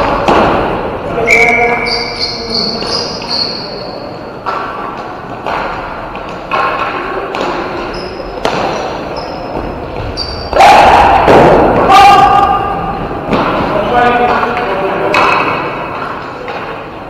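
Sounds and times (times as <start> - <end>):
short high squeaks: 1.3 - 3.9, 7.9 - 8.3, 9.1 - 9.5, 10.1 - 10.5
sticks knocking ball: 13.3 - 16.8.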